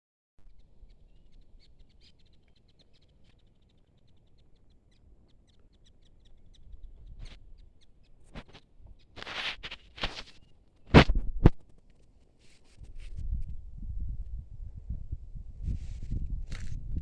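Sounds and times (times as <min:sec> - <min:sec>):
rustling noise: 0:08.2 - 0:13.5, 0:15.6 - 0:17.0.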